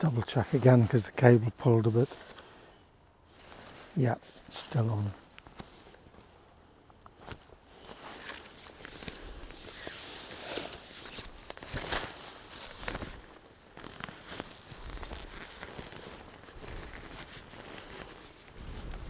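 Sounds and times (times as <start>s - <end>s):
branches crackling and snapping: 6.9s - 19.0s.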